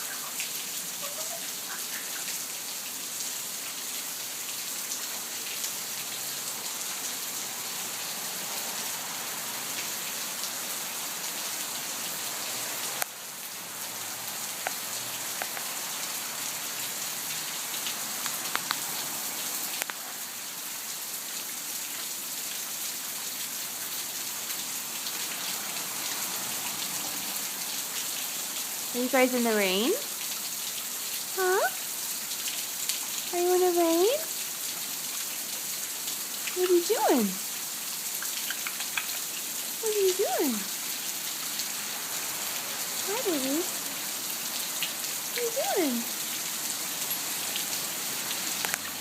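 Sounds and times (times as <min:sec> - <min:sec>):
steady rain falling: 0:00.0 - 0:49.0
sharp drip ticks: 0:36.3 - 0:37.0, 0:38.0 - 0:39.7, 0:48.6 - 0:48.9.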